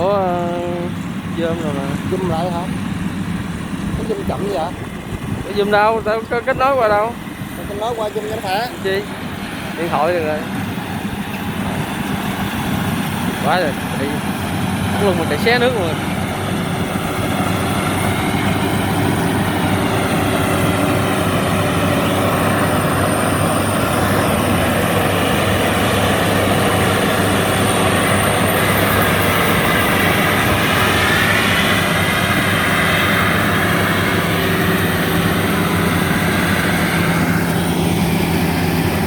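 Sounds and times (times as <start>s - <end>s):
harvester diesel engine running: 0.0s - 39.0s
high whine: 0.0s - 39.0s.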